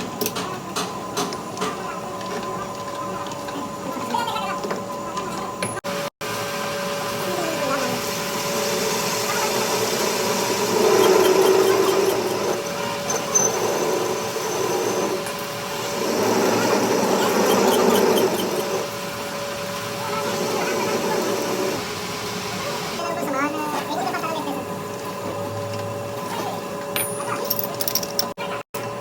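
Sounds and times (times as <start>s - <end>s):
workshop machine humming: 0.0s - 29.0s.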